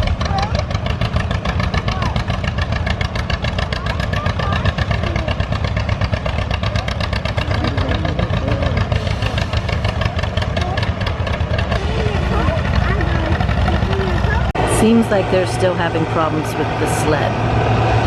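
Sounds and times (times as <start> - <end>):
tractor engine idling: 0.0 - 18.0.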